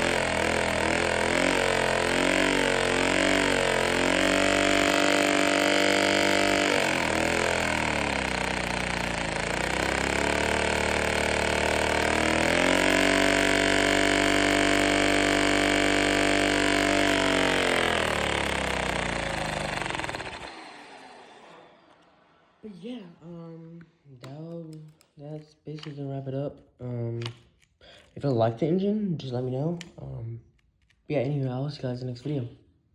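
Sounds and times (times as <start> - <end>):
toy vacuum engine buzzing: 0.0 - 22.1.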